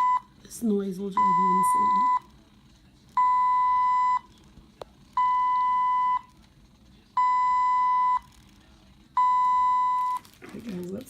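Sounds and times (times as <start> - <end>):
infusion pump alarm beeping: 0.0 - 0.4, 1.1 - 2.3, 3.2 - 4.3, 5.2 - 6.3, 7.2 - 8.3, 9.2 - 10.3.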